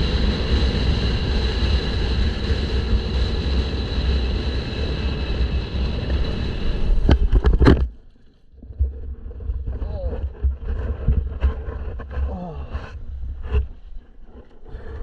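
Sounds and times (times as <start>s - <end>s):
wind buffeting microphone: 0.0s - 7.8s, 8.6s - 15.0s
dirt bike engine running: 0.0s - 7.9s.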